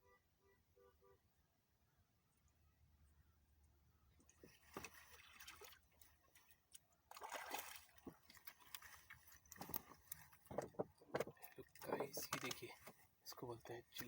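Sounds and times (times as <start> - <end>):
water sloshing and splashing: 4.2 - 13.2
small clicks and knocks: 8.0 - 13.0.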